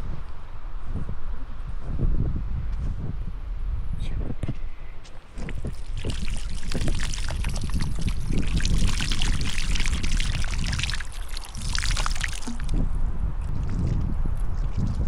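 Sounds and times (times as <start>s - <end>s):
steady low rumble: 0.0s - 15.0s
water pouring and splashing: 5.4s - 15.0s.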